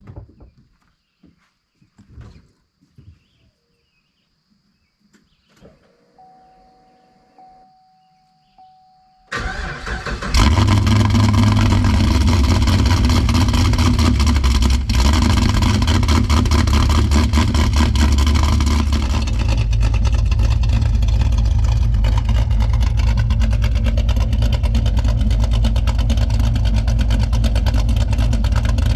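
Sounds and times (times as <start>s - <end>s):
engine cranking: 9.3s - 28.9s
engine loping idle: 9.3s - 28.9s.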